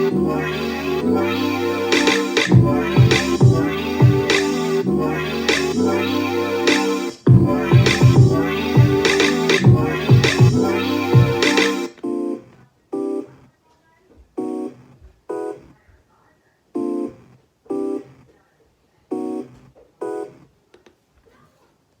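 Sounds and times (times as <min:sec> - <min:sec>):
synth stab hits: 0:07.3 - 0:11.5.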